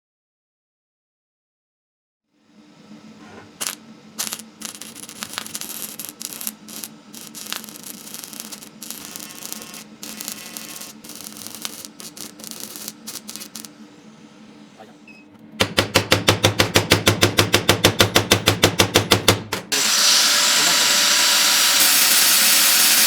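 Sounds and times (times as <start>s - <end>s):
electrical hum: 2.4s - 17.5s
crackle of sparks: 3.6s - 13.8s, 20.5s - 23.0s.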